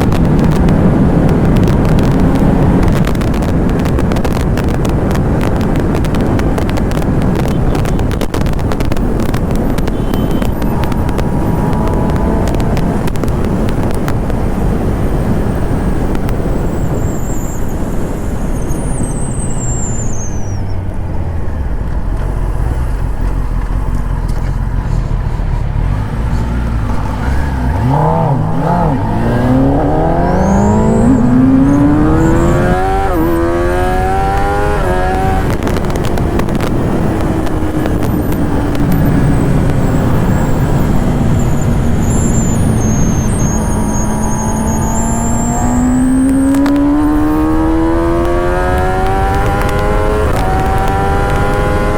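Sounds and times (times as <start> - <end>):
motorcycle engine revving: 0.0 - 20.6, 21.2 - 51.9
wind rush: 0.0 - 51.9.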